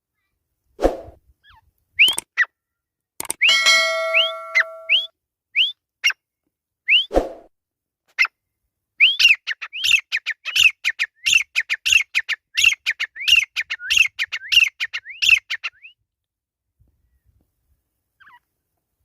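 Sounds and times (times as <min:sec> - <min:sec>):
francolin calling: 0:03.4 - 0:05.1.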